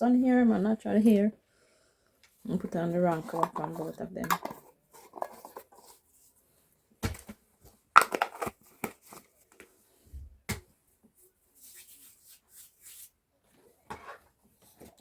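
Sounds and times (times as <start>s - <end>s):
small objects knocking and clattering: 3.1s - 5.9s, 8.0s - 9.6s.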